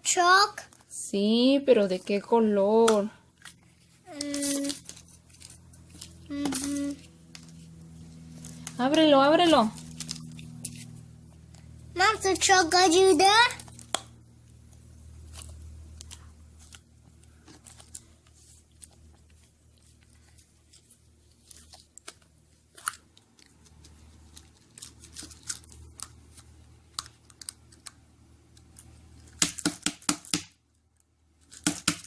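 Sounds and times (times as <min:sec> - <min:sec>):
foil crinkling: 0:03.4 - 0:11.6, 0:15.2 - 0:27.5.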